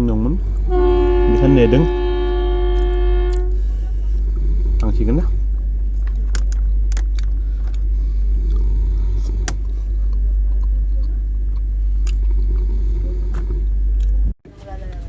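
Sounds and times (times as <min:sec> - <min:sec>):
train rumbling: 0:00.0 - 0:15.0
sharp clicks and rattles: 0:05.9 - 0:07.9.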